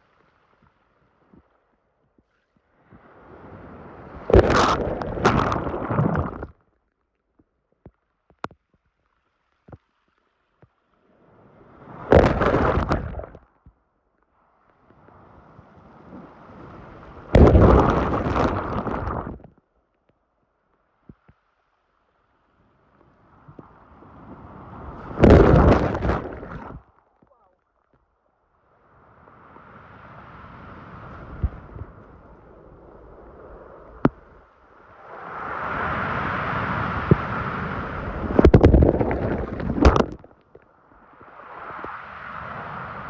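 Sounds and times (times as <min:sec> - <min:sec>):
sea waves breaking: 0:02.8 - 0:06.5, 0:11.2 - 0:13.5, 0:15.0 - 0:19.4, 0:23.2 - 0:26.9, 0:29.0 - 0:43.0.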